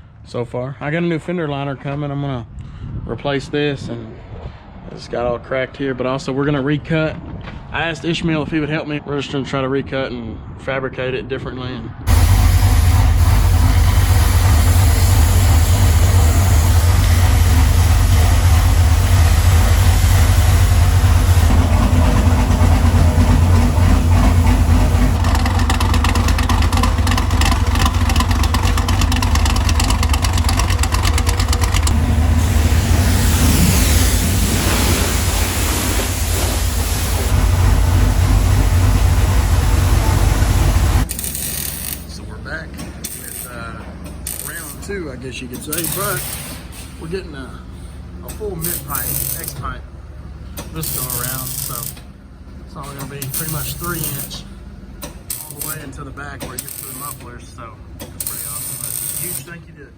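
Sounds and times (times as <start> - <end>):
car engine rumbling and revving: 12.1 - 46.2.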